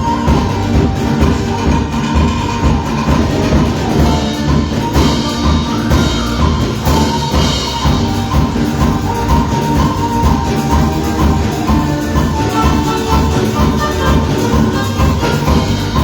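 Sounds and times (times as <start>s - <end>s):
drum and bass beat: 0.0s - 16.0s
worship band playing: 0.0s - 16.0s.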